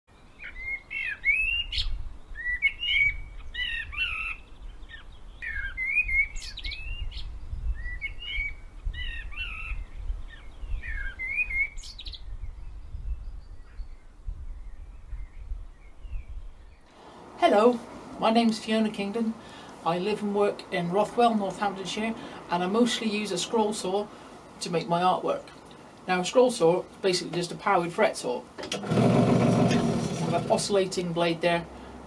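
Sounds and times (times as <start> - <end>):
songbird warbling: 0.4 - 12.3.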